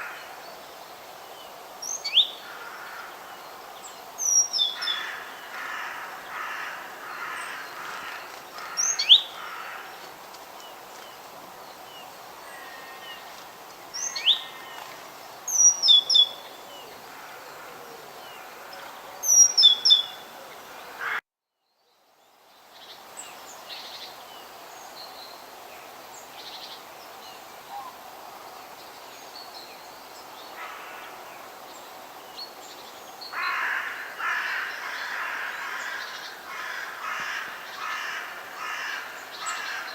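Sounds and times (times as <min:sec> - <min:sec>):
faint background birds: 0:00.0 - 0:39.9
harsh cawing calls: 0:02.4 - 0:03.3, 0:04.8 - 0:10.0, 0:20.9 - 0:21.2, 0:33.3 - 0:39.9.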